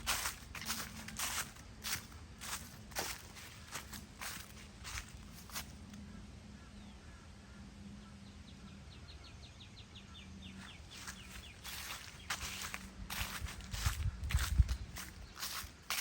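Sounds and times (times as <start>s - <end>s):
footsteps on trail: 0.0s - 5.8s, 10.6s - 16.0s.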